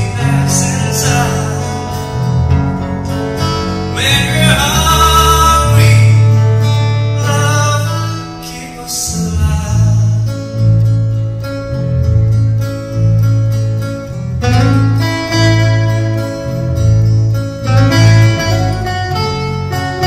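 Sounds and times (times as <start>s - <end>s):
person singing: 0.0s - 2.4s, 3.6s - 10.4s
acoustic guitar: 0.0s - 20.0s
bass line: 0.0s - 20.0s.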